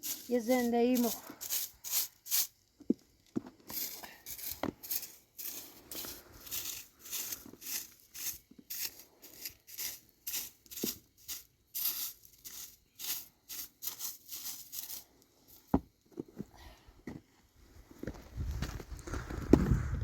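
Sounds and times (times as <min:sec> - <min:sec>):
crunching footsteps in snow: 0:03.7 - 0:15.8, 0:17.8 - 0:20.0.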